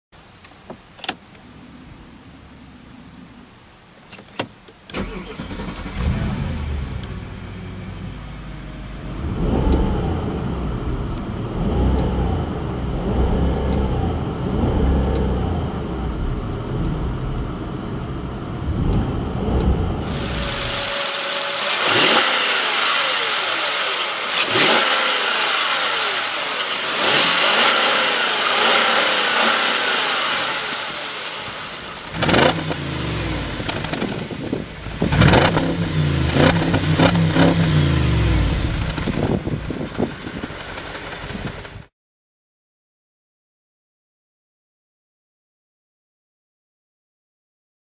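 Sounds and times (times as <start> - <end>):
car engine starting: 4.1 - 41.9
car engine revving: 4.9 - 41.7
exhaust sharp revs: 18.6 - 39.8.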